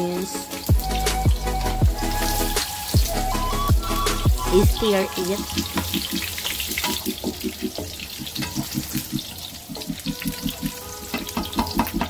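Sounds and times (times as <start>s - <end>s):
onions sizzling in hot oil: 4.7s - 12.0s.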